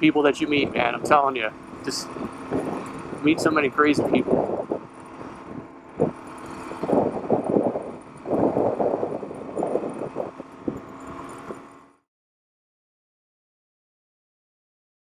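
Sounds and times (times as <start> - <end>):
wind on microphone: 0.0 - 11.7
motorcycle engine running: 0.0 - 12.0.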